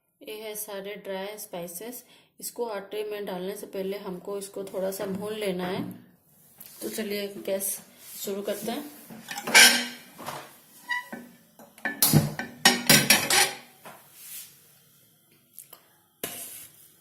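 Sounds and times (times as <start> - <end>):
metal cookware clattering on stove: 9.3 - 10.1, 10.9 - 13.7.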